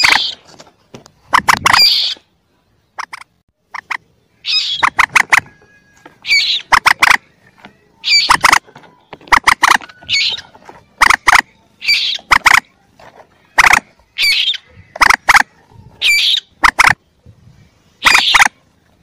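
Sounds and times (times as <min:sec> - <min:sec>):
moorhen calls: 0:01.3 - 0:02.3, 0:03.0 - 0:12.7, 0:13.4 - 0:17.0, 0:18.0 - 0:18.6.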